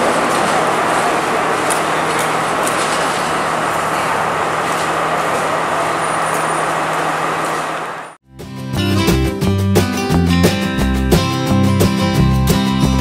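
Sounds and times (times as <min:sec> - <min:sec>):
train passing at speed: 0:00.0 - 0:08.2.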